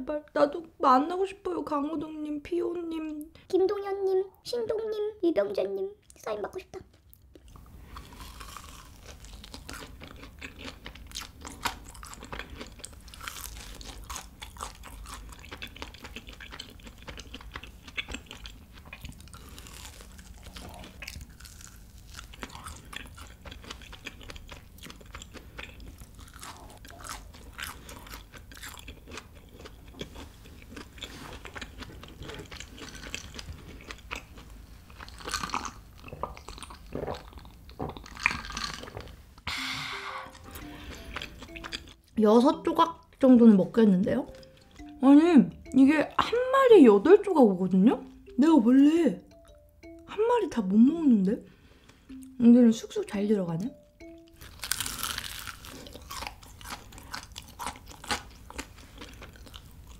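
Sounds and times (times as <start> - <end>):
crunchy chewing: 6.9 - 39.2, 40.7 - 42.1, 54.4 - 59.9.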